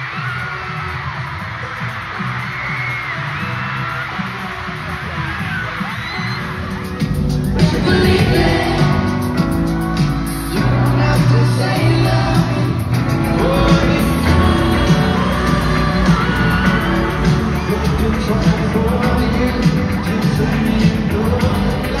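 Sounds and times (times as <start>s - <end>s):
crowd shouting along: 0.0s - 9.2s, 13.4s - 22.0s
amplified pop band playing: 0.0s - 22.0s
person singing: 6.6s - 22.0s.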